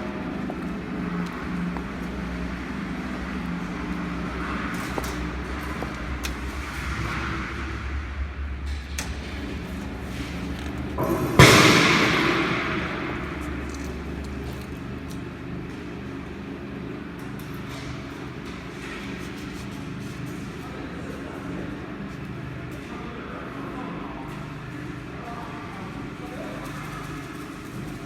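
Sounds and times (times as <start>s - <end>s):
loud metallic bang: 6.5s - 14.8s.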